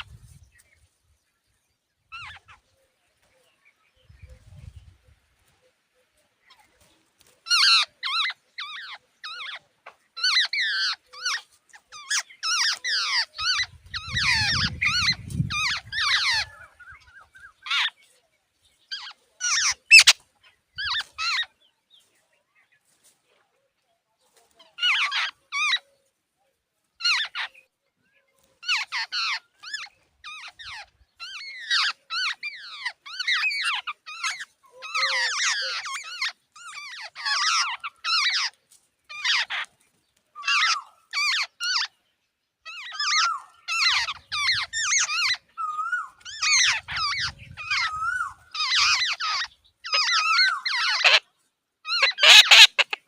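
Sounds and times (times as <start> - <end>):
birds making harsh squeaky calls: 2.1 - 2.8, 6.4 - 18.1, 18.8 - 21.6, 24.4 - 26.0, 26.9 - 27.7, 28.5 - 53.0.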